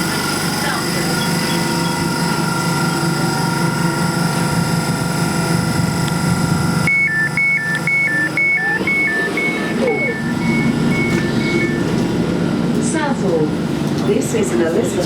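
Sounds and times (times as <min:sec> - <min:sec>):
train running hum and whine: 0:00.0 - 0:15.0
two-tone door warning beeping: 0:01.0 - 0:03.2, 0:06.8 - 0:12.2.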